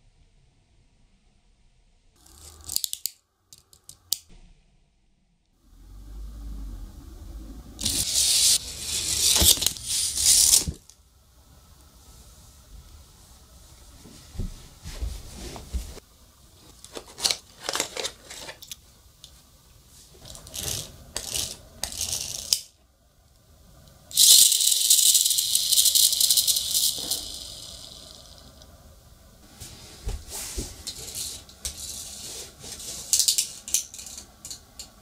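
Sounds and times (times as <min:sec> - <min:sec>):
toy car clicking and rattling: 0:02.2 - 0:04.2, 0:07.8 - 0:10.9, 0:20.3 - 0:22.7, 0:24.1 - 0:28.6, 0:33.1 - 0:34.9.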